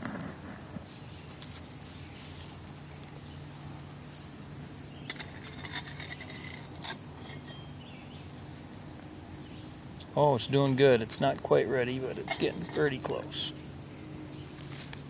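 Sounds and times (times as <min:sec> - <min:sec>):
low outdoor hum: 0:00.0 - 0:15.0
metal pot lid clinking: 0:12.2 - 0:13.1.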